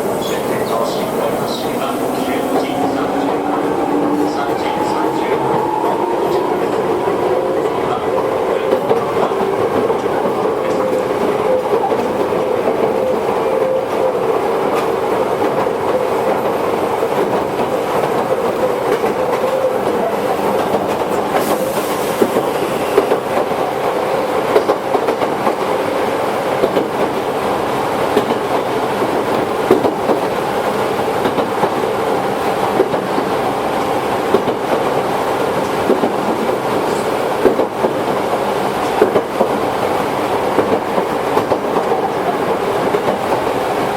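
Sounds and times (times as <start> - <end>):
train wheels rumbling on rail: 0.0 - 43.9
steady tone: 0.5 - 8.6.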